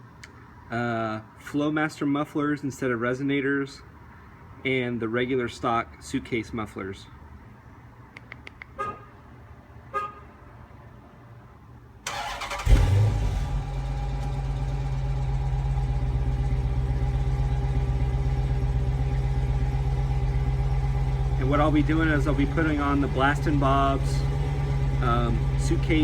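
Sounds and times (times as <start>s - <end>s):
car engine starting and idling: 12.0s - 26.0s.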